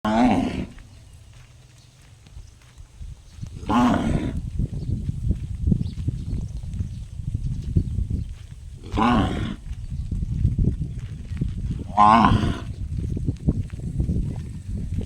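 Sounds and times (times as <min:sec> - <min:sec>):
cow calling: 0:00.0 - 0:00.8, 0:03.6 - 0:04.4, 0:08.8 - 0:09.6, 0:11.9 - 0:12.7.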